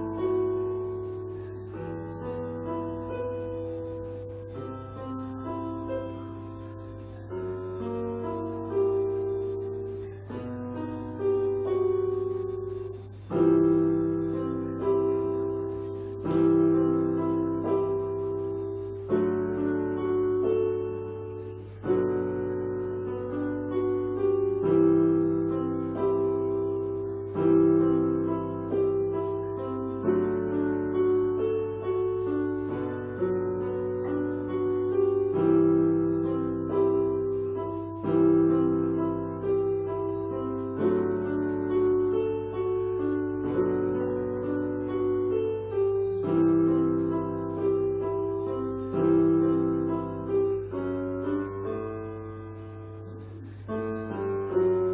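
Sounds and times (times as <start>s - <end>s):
slow piano chords: 0.0s - 54.9s.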